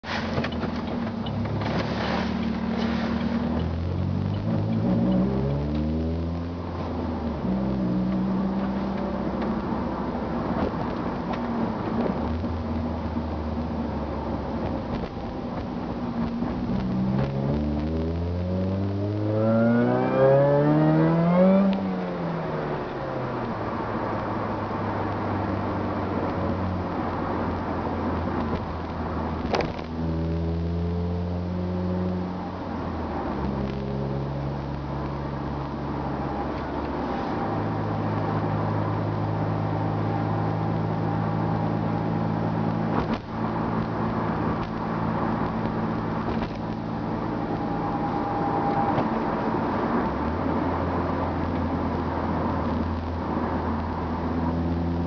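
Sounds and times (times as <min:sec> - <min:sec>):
car engine drone from inside cabin: 0:00.0 - 0:55.0.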